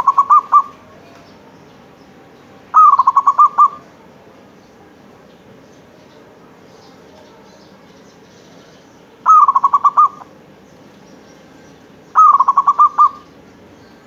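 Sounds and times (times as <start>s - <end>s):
dove cooing: 0.0s - 1.3s, 2.7s - 4.1s, 9.2s - 10.4s, 12.1s - 13.4s.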